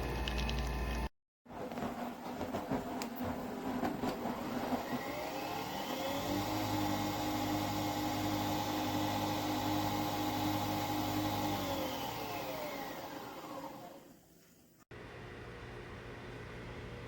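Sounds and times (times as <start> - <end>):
coffee machine motor whirring: 4.8 - 14.2.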